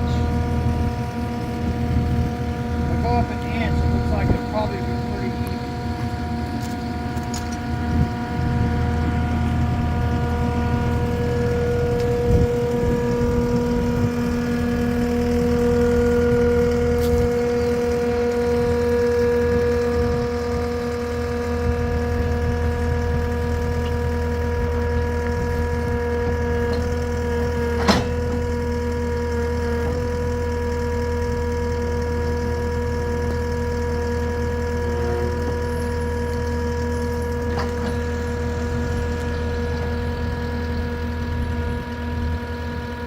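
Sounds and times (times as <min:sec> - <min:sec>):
engine idling: 0:00.0 - 0:43.0
thump: 0:27.8 - 0:28.2.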